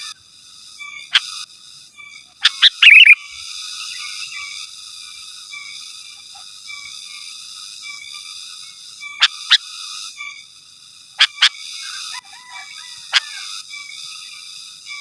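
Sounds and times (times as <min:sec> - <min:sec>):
bird calling and chattering: 0:02.4 - 0:03.2
high-pitched background drone: 0:02.6 - 0:03.2.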